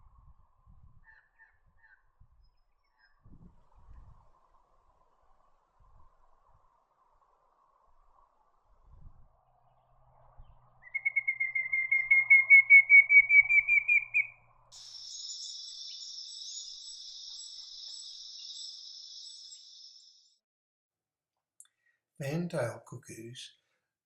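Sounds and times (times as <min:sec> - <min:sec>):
cuckoo whistled call: 0:10.8 - 0:20.0
high insect drone: 0:14.8 - 0:20.3.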